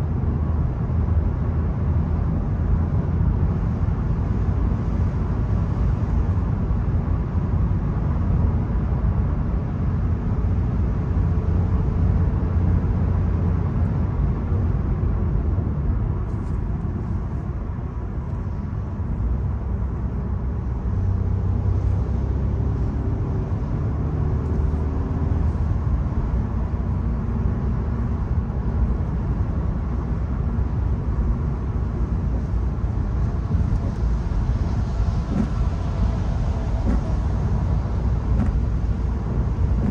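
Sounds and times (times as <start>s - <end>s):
road and tyre noise: 0.0s - 39.9s
car engine running: 22.8s - 39.9s.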